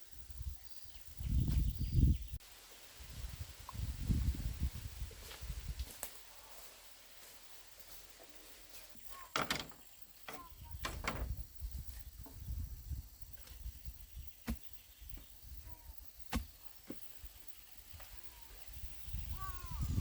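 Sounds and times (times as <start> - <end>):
sharp knocks and clatters: 9.3 - 11.4.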